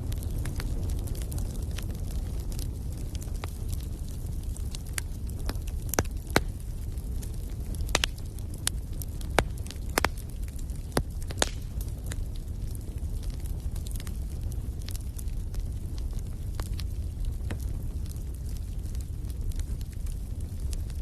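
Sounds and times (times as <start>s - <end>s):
low steady rumble: 0.0s - 21.0s
wood fire crackling and popping: 0.0s - 21.0s.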